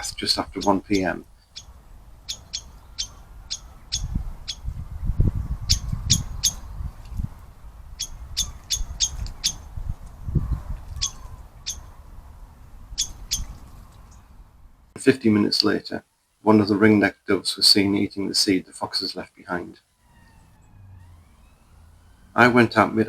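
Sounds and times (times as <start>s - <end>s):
bird calling sharp notes: 0.0s - 4.7s, 5.7s - 6.7s, 8.0s - 9.7s, 11.0s - 12.0s, 12.9s - 13.6s, 19.9s - 22.8s.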